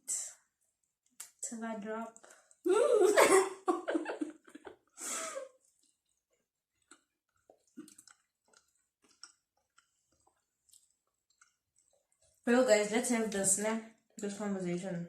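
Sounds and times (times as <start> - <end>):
wet chewing mouth clicks: 0.8 - 1.4, 5.5 - 12.5.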